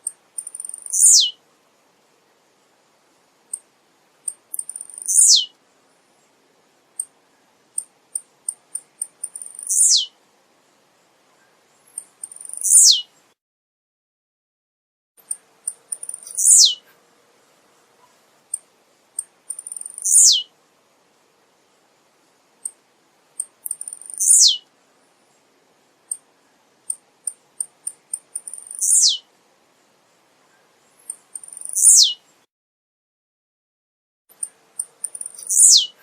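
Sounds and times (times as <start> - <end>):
bird singing chips and sweeps: 0.4 - 1.4, 4.5 - 5.5, 9.3 - 10.1, 11.9 - 13.1, 16.0 - 16.8, 19.5 - 20.5, 23.7 - 24.6, 28.4 - 29.2, 31.0 - 32.2, 35.1 - 36.0.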